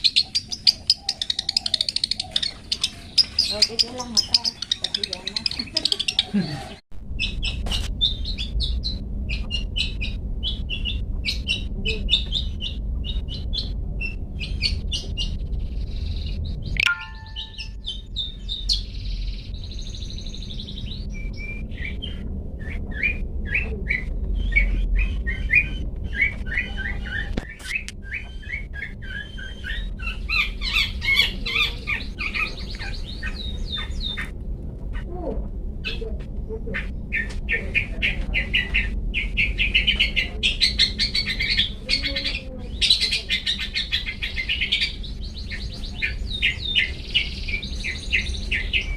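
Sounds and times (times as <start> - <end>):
bird singing chirps and whistles: 7.2 - 34.3, 37.0 - 48.9.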